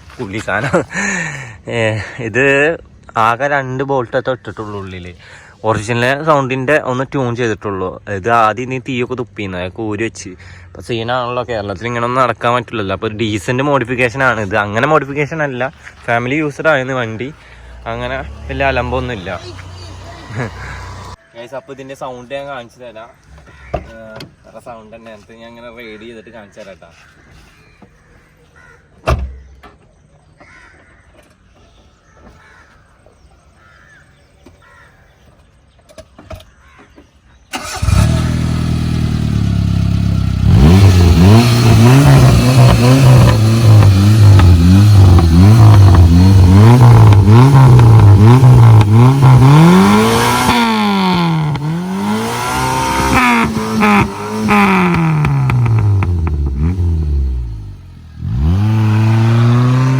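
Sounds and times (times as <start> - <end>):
car engine revving: 15.8 - 21.2, 37.6 - 59.9.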